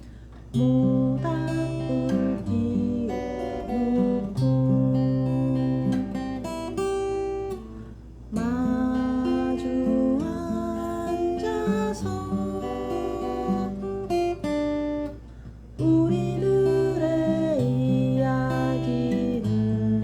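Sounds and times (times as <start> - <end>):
acoustic guitar chords: 0.0 - 20.0.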